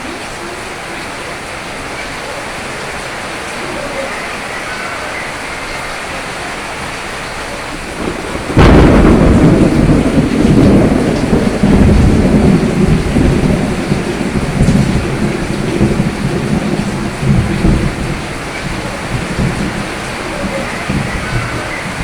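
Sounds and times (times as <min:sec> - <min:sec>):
steady rain: 0:00.0 - 0:22.0
thunderclap: 0:06.6 - 0:22.0.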